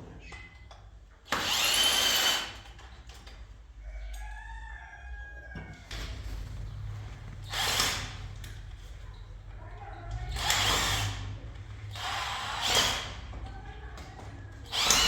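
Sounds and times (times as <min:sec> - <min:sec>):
power drill driving a screw: 0:01.3 - 0:02.7, 0:07.4 - 0:08.5, 0:10.3 - 0:11.2, 0:11.9 - 0:13.2, 0:14.7 - 0:15.0
rooster crowing: 0:03.8 - 0:05.9.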